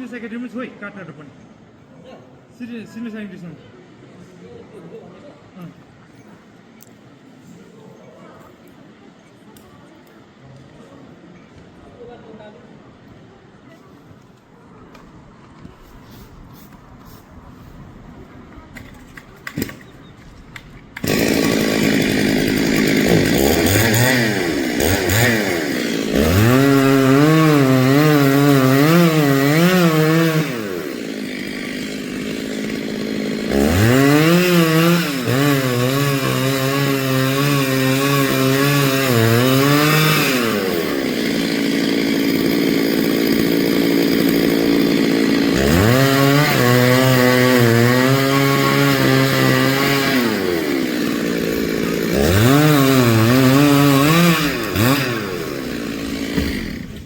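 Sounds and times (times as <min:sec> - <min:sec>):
chainsaw cutting a tree: 0:21.0 - 0:57.0.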